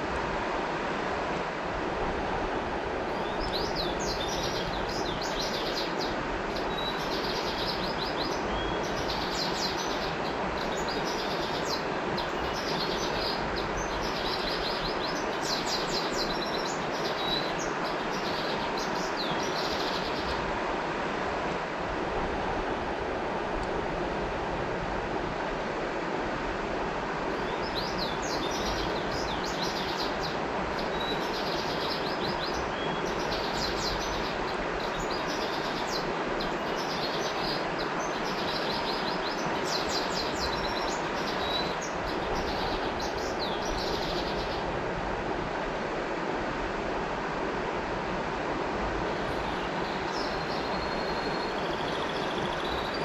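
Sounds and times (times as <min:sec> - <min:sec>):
river water rushing: 0:00.0 - 0:53.0
songbird chirping: 0:03.1 - 0:20.4, 0:27.4 - 0:44.6, 0:49.1 - 0:53.0.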